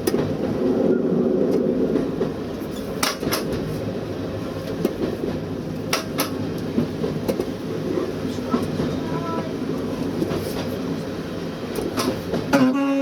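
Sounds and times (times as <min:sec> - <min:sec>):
train rumbling: 0:00.0 - 0:13.0
wheels clicking over rail joint: 0:01.5 - 0:03.7, 0:04.6 - 0:07.6, 0:11.7 - 0:12.8.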